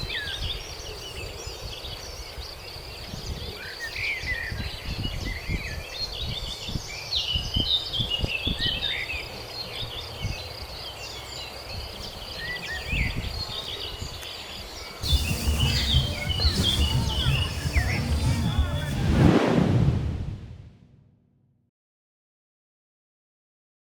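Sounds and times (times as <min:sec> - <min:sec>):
birds chirping: 0:00.0 - 0:19.1
high insect drone: 0:15.0 - 0:18.9
low rumble: 0:15.0 - 0:21.2.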